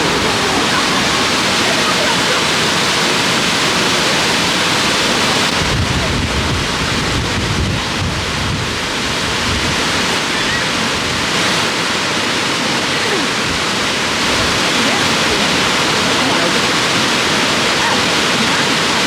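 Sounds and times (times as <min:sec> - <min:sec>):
wind buffeting microphone: 0:00.0 - 0:11.8
waterfall rushing: 0:00.0 - 0:19.0.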